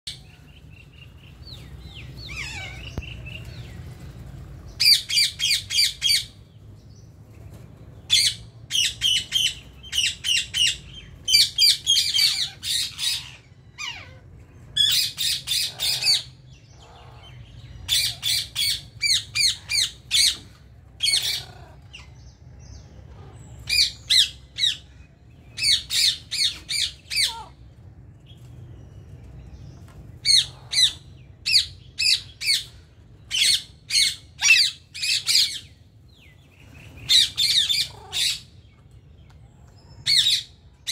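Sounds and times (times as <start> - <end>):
parakeets squawking: 1.5 - 3.6, 4.8 - 6.4, 8.1 - 22.2, 23.0 - 27.7, 30.2 - 35.8, 36.9 - 38.6.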